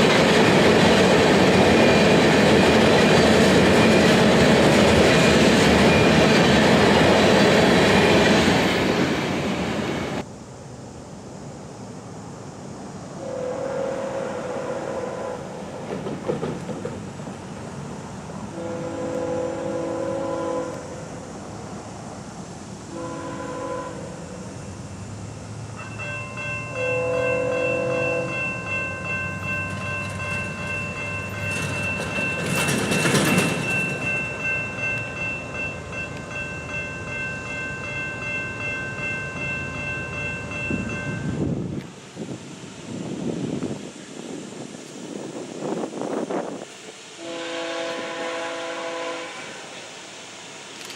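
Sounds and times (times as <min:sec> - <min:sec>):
passing train rush: 0:00.0 - 0:50.9
train air horn blasts: 0:13.2 - 0:15.6, 0:18.5 - 0:21.1, 0:22.9 - 0:24.4, 0:26.7 - 0:28.4, 0:47.1 - 0:50.0.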